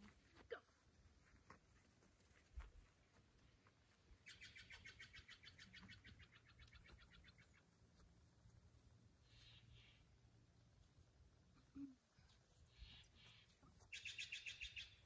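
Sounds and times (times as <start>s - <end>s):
faint bird trill: 4.3s - 7.6s, 12.3s - 15.0s.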